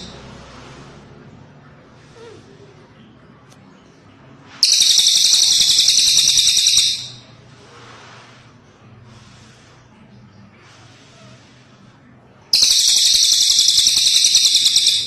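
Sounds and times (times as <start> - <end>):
bird buzzing trill: 4.6 - 7.2, 12.6 - 15.0.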